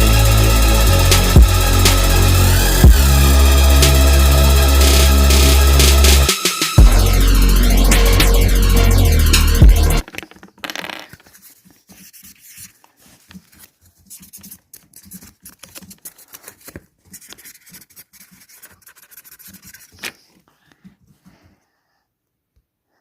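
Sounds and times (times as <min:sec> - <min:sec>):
small scratches and clicks of handling: 0:10.2 - 0:20.4.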